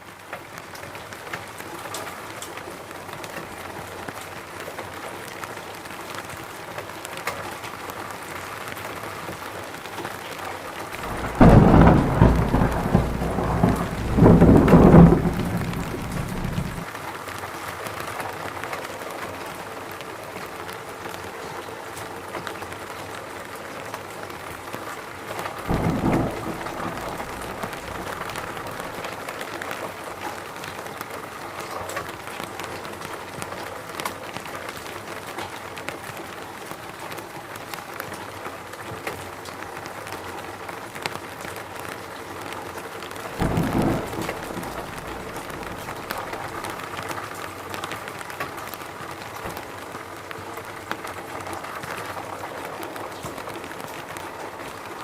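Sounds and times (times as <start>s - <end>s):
steady rainfall in a forest: 0.0s - 55.0s
deeper rain swell: 11.0s - 16.9s, 25.7s - 29.2s, 43.4s - 47.1s.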